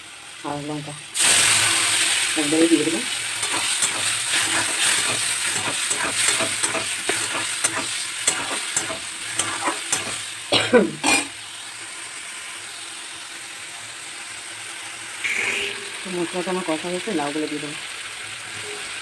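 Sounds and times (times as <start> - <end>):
food sizzling in hot oil: 0.0 - 19.0
spatula scraping a pan: 3.3 - 10.4.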